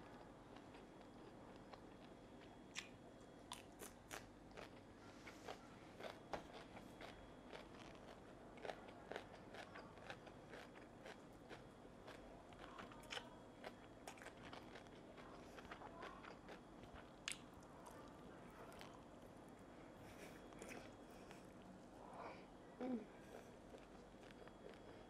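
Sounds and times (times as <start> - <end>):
person chewing crunchy food: 3.5 - 17.6, 23.3 - 25.0.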